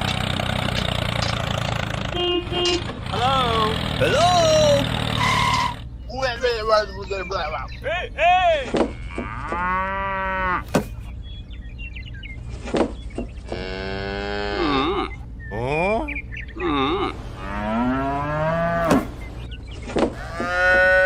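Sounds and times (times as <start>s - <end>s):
cattle mooing: 8.8s - 10.6s, 13.5s - 15.2s, 16.6s - 19.1s, 20.2s - 21.0s.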